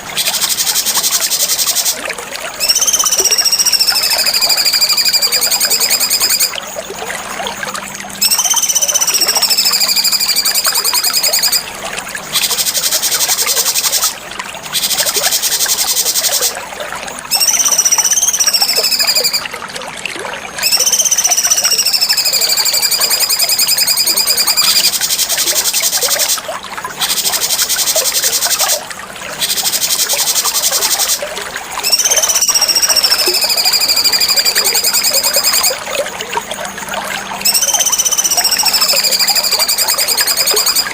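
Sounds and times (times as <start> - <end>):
bird singing whistles and trills: 0.0 - 6.7, 8.2 - 11.7, 12.3 - 16.6, 17.3 - 19.5, 20.6 - 26.4, 29.4 - 31.2, 31.8 - 36.0, 37.2 - 40.9.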